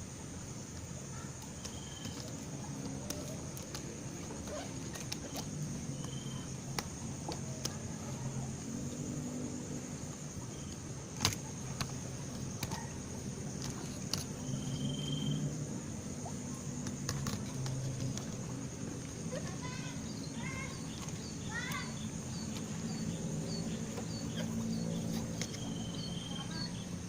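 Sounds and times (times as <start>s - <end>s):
vehicle engine hum: 0.8s - 27.0s.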